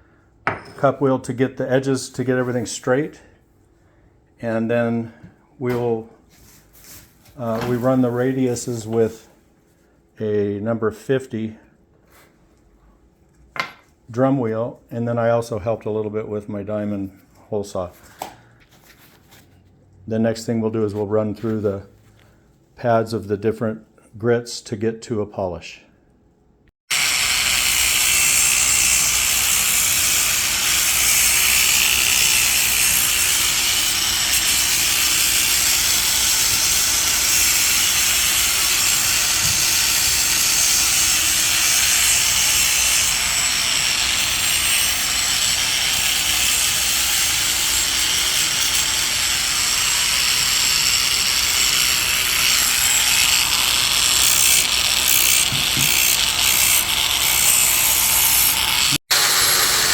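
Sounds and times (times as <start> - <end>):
power polisher grinding hiss: 26.9 - 59.9.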